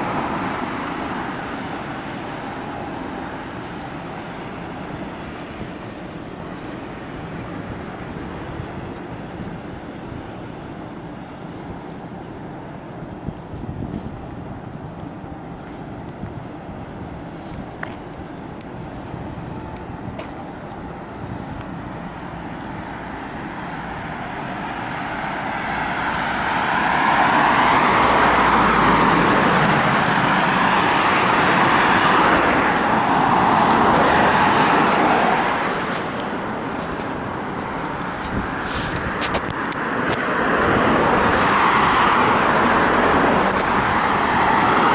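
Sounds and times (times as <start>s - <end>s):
vehicle passing with tyre noise: 0.0s - 9.0s, 21.7s - 44.9s
road traffic hum: 0.0s - 44.9s.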